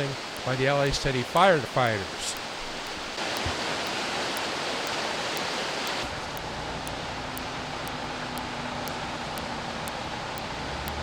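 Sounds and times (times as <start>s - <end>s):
river water rushing: 0.0s - 6.1s.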